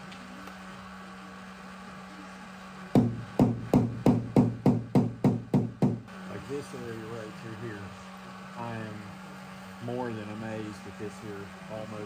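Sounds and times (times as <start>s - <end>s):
hammer tapping on sheet metal: 3.0s - 6.0s.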